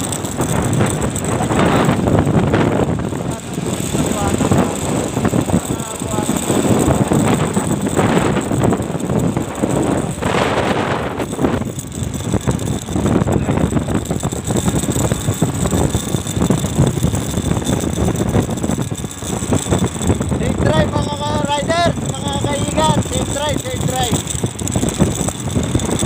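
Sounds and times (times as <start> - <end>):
vehicle running noise: 0.0 - 26.0
wind rumble: 0.0 - 26.0.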